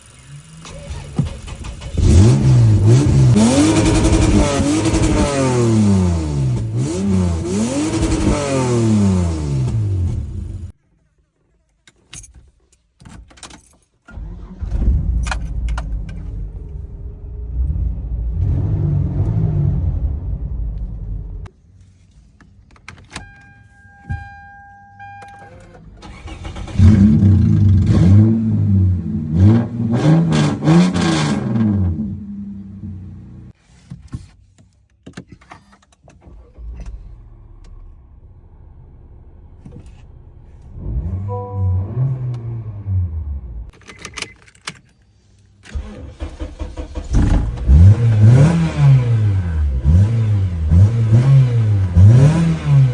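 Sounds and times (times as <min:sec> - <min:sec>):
car engine idling: 0:00.0 - 0:04.4
car engine starting and idling: 0:00.0 - 0:10.8, 0:14.0 - 0:21.6, 0:22.4 - 0:33.6, 0:35.8 - 0:52.9
car keys jingling: 0:11.7 - 0:14.1, 0:22.7 - 0:26.6, 0:43.7 - 0:45.1.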